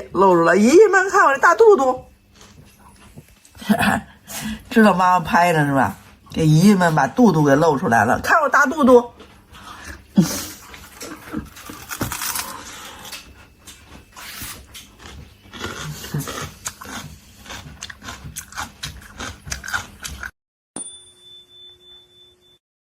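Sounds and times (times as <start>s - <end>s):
person crunching raw radish: 10.6s - 20.3s.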